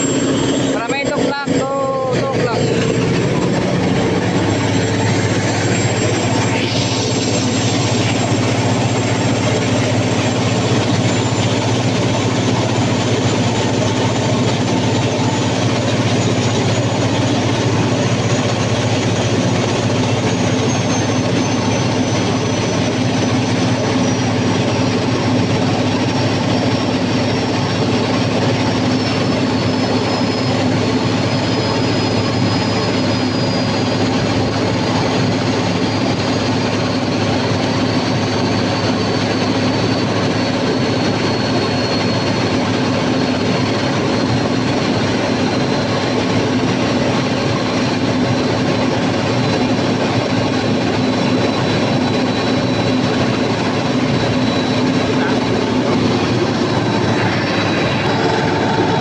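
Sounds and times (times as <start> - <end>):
diesel generator engine running: 0.0 - 59.0
faint high whine: 0.0 - 59.0.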